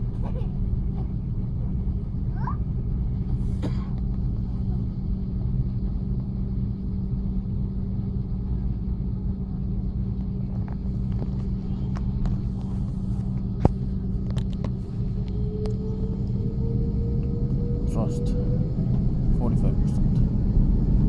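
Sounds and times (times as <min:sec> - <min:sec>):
jet engine rumble: 0:00.0 - 0:21.0
rising tone: 0:14.9 - 0:21.0.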